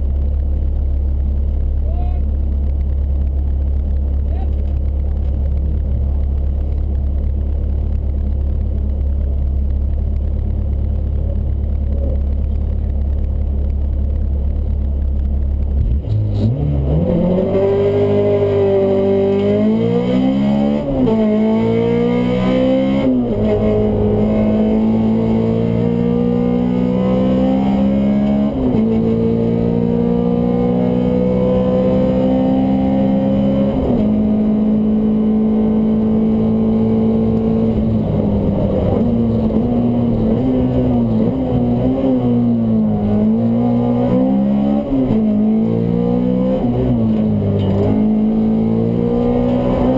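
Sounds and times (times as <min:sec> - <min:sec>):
car engine revving and accelerating: 0:15.6 - 0:49.9.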